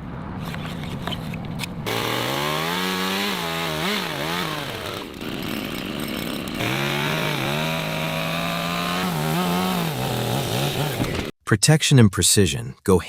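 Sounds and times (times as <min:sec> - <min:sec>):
chainsaw cutting timber: 0:01.9 - 0:11.3.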